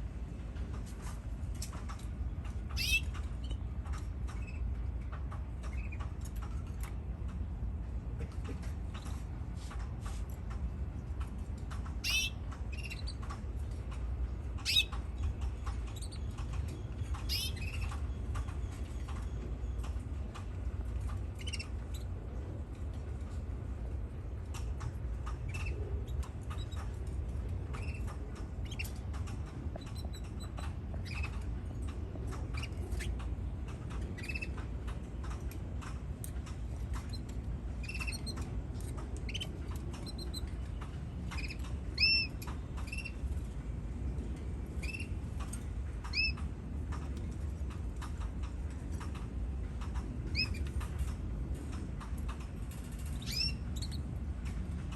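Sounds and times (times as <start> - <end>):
steady low rumble: 0.0 - 54.9
canary chirping: 2.8 - 3.6, 12.0 - 13.2, 14.6 - 15.0, 17.1 - 17.9, 21.4 - 22.0, 27.7 - 29.0, 29.8 - 31.4, 34.2 - 34.6, 37.0 - 38.4, 39.2 - 40.5, 41.3 - 43.2, 46.1 - 46.4, 50.3 - 50.7, 53.1 - 54.0.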